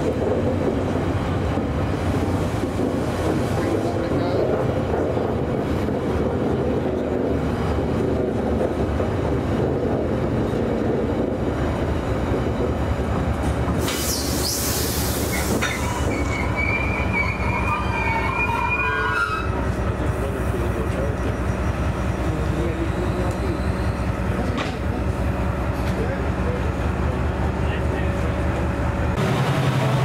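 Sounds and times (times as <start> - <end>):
train wheels rumbling over rails: 0.0 - 30.0
wheels squealing: 13.9 - 19.7.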